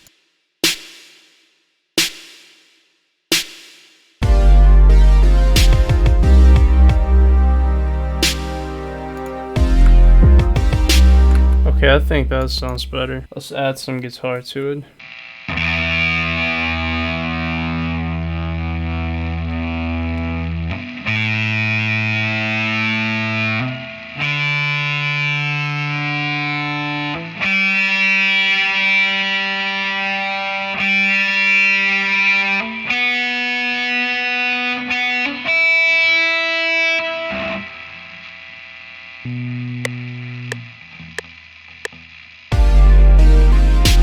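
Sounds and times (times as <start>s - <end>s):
electric guitar chords: 4.2s - 13.3s, 15.5s - 44.0s.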